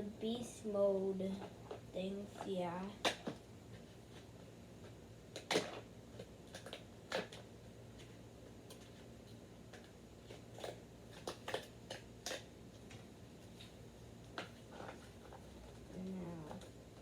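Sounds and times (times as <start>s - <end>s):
packaging clicking and crackling: 5.3s - 9.0s.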